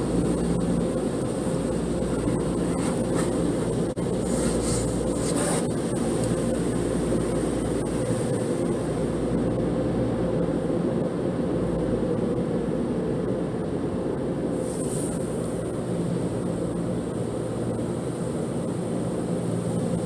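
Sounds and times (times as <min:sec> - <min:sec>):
car wash water and machinery rumble: 0:00.0 - 0:20.0.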